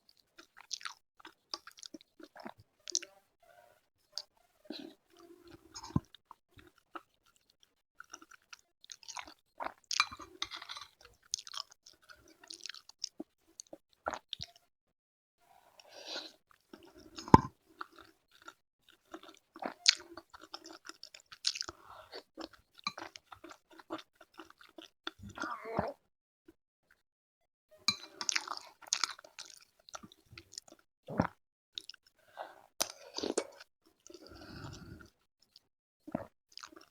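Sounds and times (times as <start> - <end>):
person chewing and crunching food: 0.1 - 3.1, 4.2 - 14.6, 15.7 - 26.0, 27.9 - 36.9.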